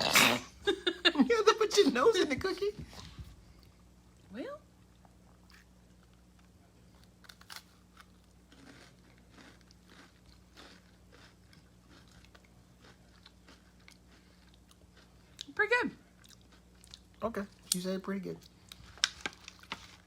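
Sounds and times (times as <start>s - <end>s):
cookie crunching and chewing: 4.8s - 20.0s.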